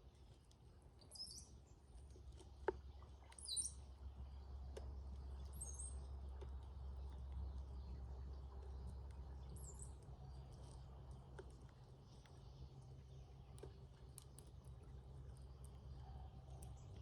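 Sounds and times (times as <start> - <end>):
low steady hum: 0.0 - 17.0
birds whistling calls: 3.4 - 3.8.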